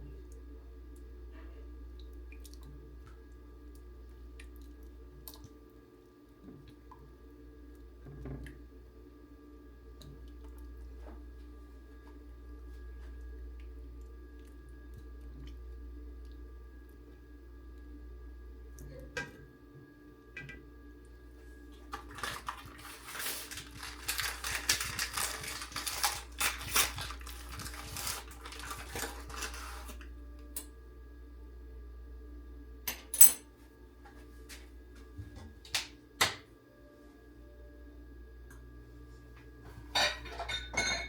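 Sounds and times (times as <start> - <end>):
steady background hum: 0.0 - 41.0
dishes and utensils clattering: 39.9 - 41.0.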